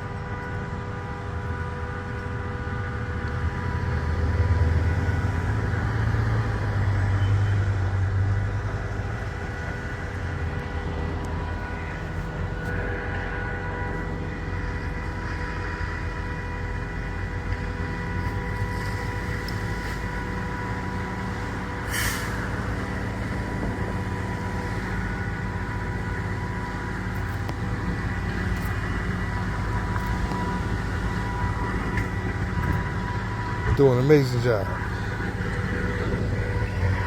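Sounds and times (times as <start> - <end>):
heavy vehicle engine rumble: 0.0 - 37.0
high whine: 8.5 - 37.0
burst of hiss: 21.9 - 22.4.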